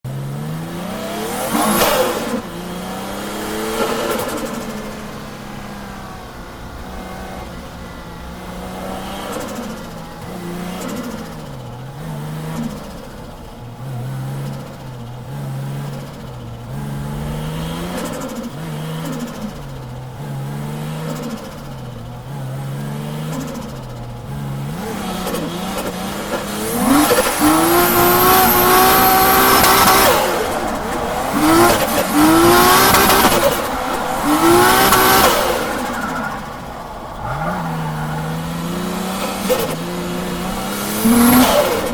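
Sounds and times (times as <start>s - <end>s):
car engine revving: 0.1s - 41.9s
tyres squealing: 26.2s - 41.6s.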